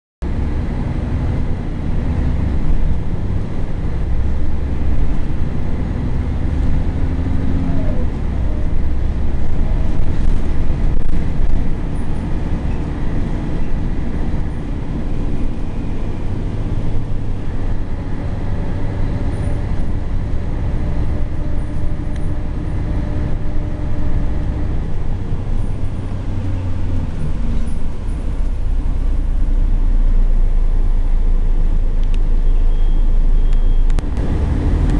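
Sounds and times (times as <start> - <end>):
bus diesel engine rumble: 0.2 - 34.9.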